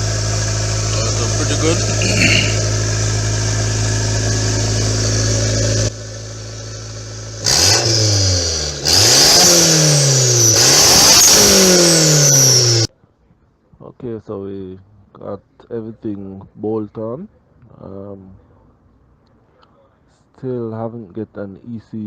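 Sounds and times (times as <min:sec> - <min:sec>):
car engine idling and revving: 0:00.0 - 0:12.9.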